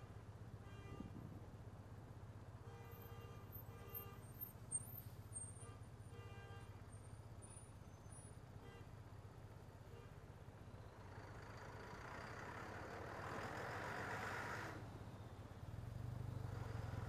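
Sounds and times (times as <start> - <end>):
faint horn toots: 0.6 - 1.4.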